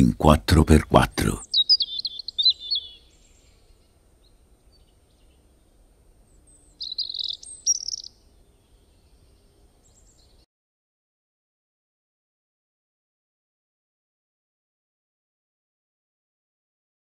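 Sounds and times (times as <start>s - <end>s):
bird chirping: 0.0s - 10.4s.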